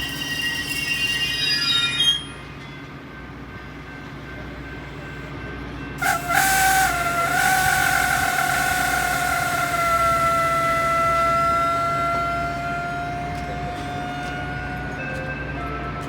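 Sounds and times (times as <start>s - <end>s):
low rail rumble: 0.0s - 16.0s
train wheel squeal: 0.0s - 16.0s
train horn long note: 6.0s - 15.7s.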